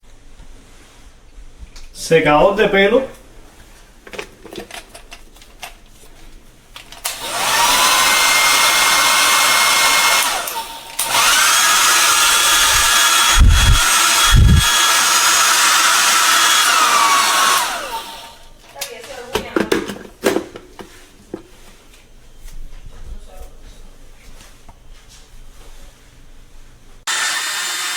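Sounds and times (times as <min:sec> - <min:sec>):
hair dryer whining and blowing: 0:07.0 - 0:18.5, 0:27.1 - 0:27.9
low thumps: 0:12.2 - 0:14.9.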